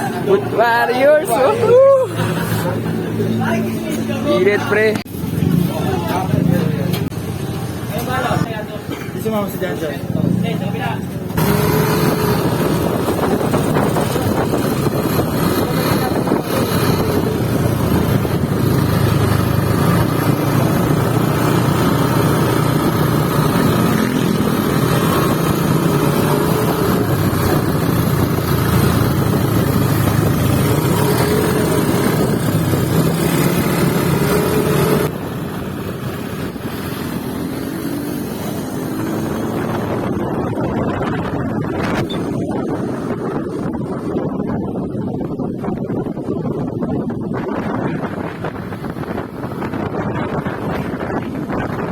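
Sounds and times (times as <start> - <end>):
motorboat engine running: 11.3 - 37.3
wind buffeting microphone: 11.3 - 51.9.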